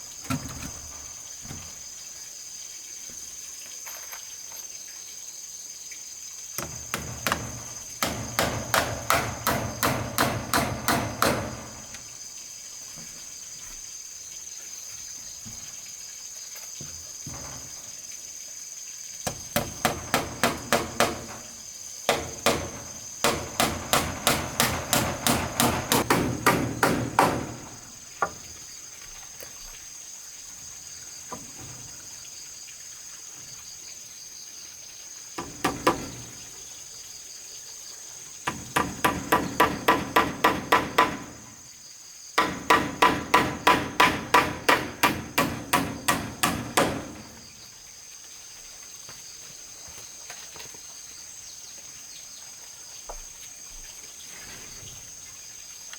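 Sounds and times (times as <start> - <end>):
insects trilling: 0.0 - 55.9
hammer driving nails into wood: 6.6 - 12.0, 19.3 - 27.8, 35.4 - 36.3, 38.5 - 41.5, 42.4 - 47.4.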